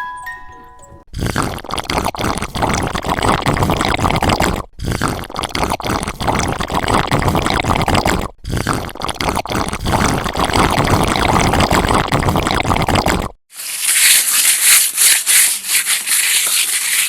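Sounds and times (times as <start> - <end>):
chiming music jingle: 0.0 - 1.0
water pouring and splashing: 9.3 - 17.0.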